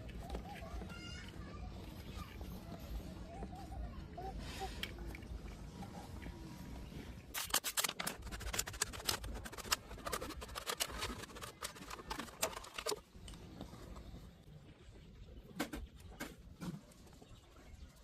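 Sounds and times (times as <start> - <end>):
plastic pipe clicks and scrapes: 7.3 - 14.1.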